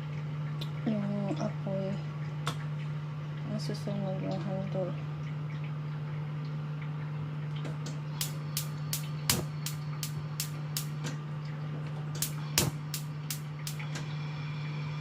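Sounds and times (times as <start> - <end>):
gas stove igniter clicking: 8.2 - 11.1, 12.2 - 13.9.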